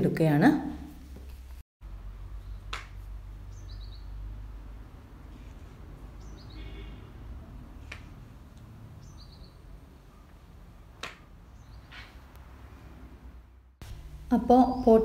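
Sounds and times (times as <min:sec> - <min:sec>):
bird chirping: 0:02.3 - 0:02.7, 0:03.3 - 0:04.3, 0:06.1 - 0:07.0, 0:08.9 - 0:10.2, 0:11.5 - 0:12.2.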